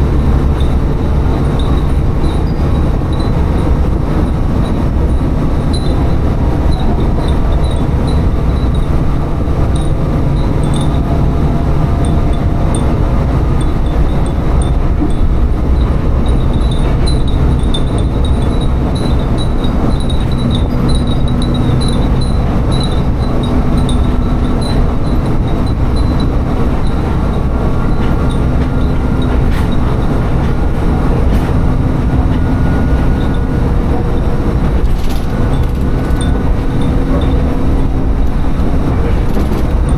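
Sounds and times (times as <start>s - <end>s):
railcar engine and wheel rumble: 0.0s - 39.9s
glass wind chimes tinkling: 0.5s - 29.3s, 34.9s - 37.9s.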